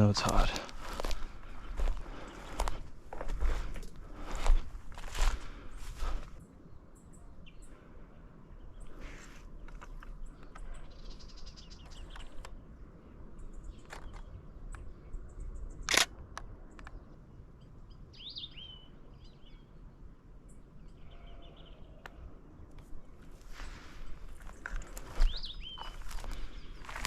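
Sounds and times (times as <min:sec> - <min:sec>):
small birds chirping: 0:00.0 - 0:27.0
camera shutter clicks: 0:15.8 - 0:16.2.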